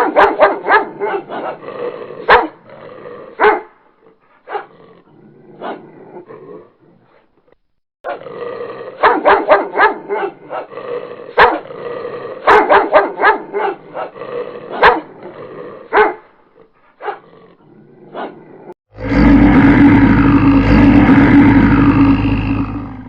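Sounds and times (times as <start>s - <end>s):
dog barking: 0.0s - 1.6s, 2.2s - 2.6s, 3.3s - 3.8s, 4.4s - 4.7s, 5.6s - 5.8s, 9.0s - 10.7s, 11.3s - 11.7s, 12.4s - 15.2s, 15.9s - 16.3s, 17.0s - 17.3s.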